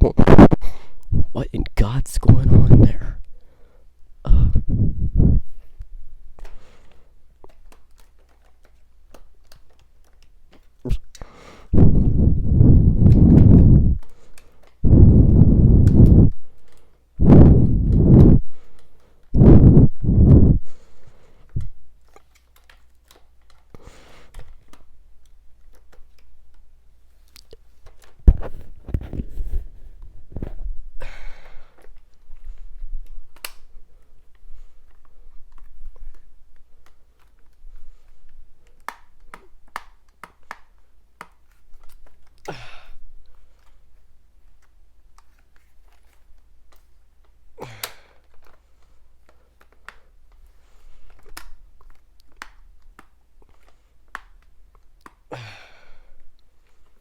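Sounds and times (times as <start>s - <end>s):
plastic parts rubbing and knocking: 4.7s - 30.8s.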